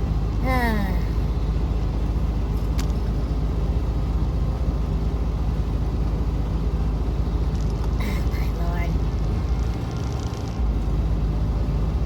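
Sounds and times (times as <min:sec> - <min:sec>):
diesel truck engine idling: 0:00.0 - 0:09.9, 0:10.6 - 0:12.0.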